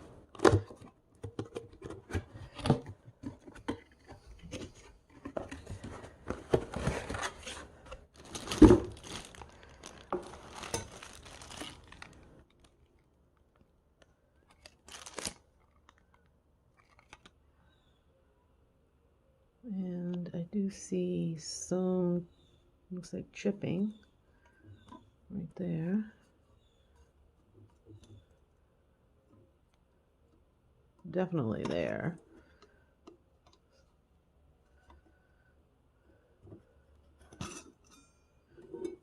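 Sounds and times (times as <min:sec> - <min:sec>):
packaging rustling: 0:00.4 - 0:12.9, 0:14.5 - 0:17.3.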